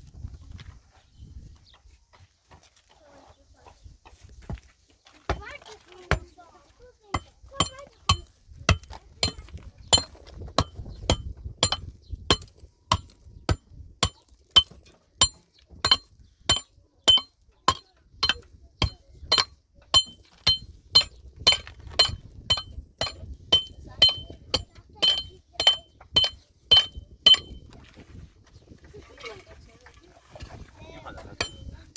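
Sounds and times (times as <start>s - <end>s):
metal striking metal with ring: 7.2s - 27.7s, 31.4s - 31.8s.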